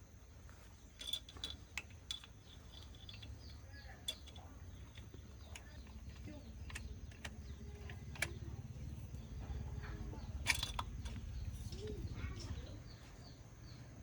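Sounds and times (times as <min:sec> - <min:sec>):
low steady rumble: 0:00.0 - 0:14.0
sharp clicks: 0:01.0 - 0:12.1.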